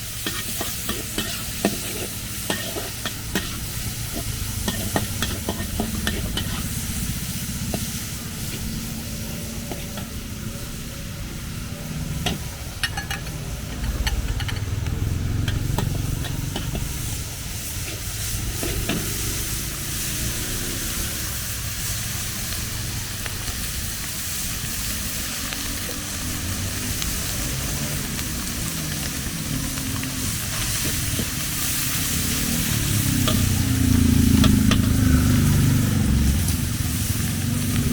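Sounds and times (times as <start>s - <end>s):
food sizzling in a wok: 0.0s - 37.9s
low rumble: 3.1s - 37.9s.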